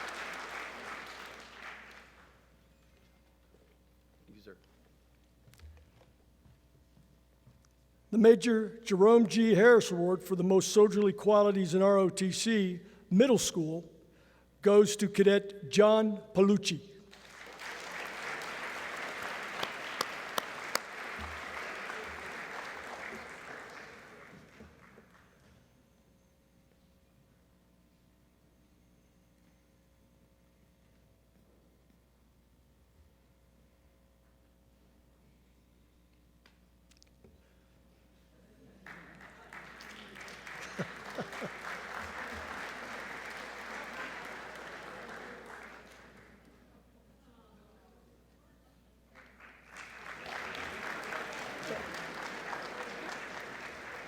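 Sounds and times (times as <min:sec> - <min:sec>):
audience applauding: 0:00.0 - 0:02.4, 0:17.1 - 0:25.3, 0:38.8 - 0:46.5, 0:49.2 - 0:54.0.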